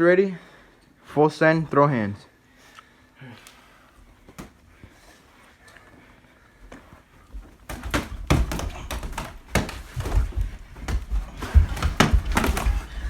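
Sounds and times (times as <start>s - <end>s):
feet scuffling: 6.6s - 13.0s
punches landing heavy thuds: 7.6s - 13.0s.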